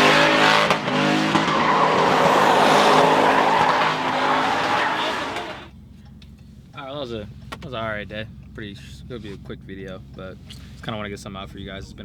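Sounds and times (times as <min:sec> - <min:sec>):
car engine revving: 0:00.0 - 0:05.7
tires squealing: 0:00.0 - 0:05.7.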